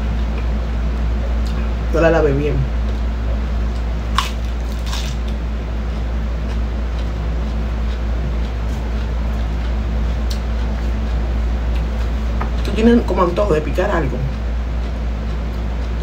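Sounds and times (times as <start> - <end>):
steady low hum: 0.0 - 16.0
lettuce being bitten and chewed: 3.7 - 5.4.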